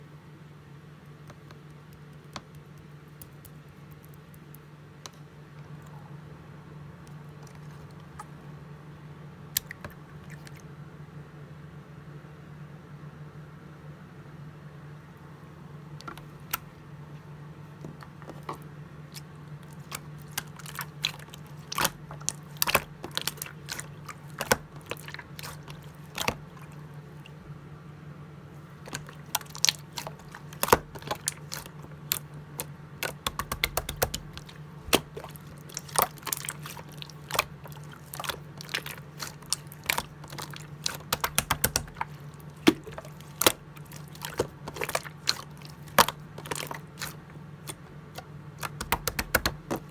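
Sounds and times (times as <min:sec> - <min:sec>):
slime squeezed clicking and popping: 0:28.8 - 0:47.8, 0:48.6 - 0:49.9.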